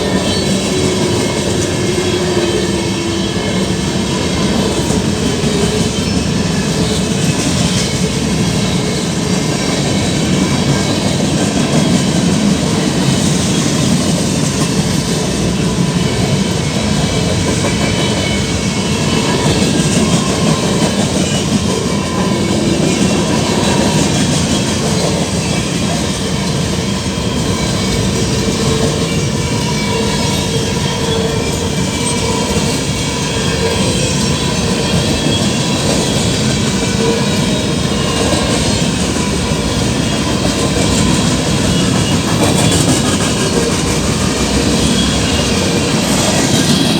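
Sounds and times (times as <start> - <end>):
freight train wheels rumbling: 0.0 - 46.9.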